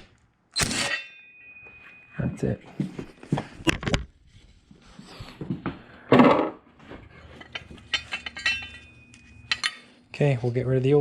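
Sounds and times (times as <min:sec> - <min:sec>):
metal parts clattering: 0:07.3 - 0:09.9
metal parts clicking and clinking: 0:07.3 - 0:09.9.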